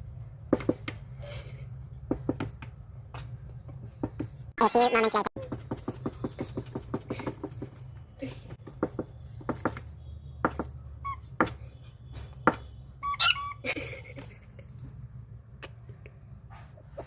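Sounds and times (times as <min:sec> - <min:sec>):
cockatiel chirp: 0:13.0 - 0:13.6
cockatiel squawk: 0:13.0 - 0:13.6.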